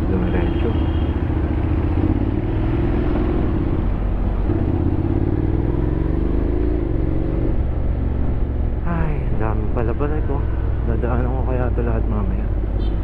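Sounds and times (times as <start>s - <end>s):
motorcycle engine accelerating: 0.0s - 8.5s.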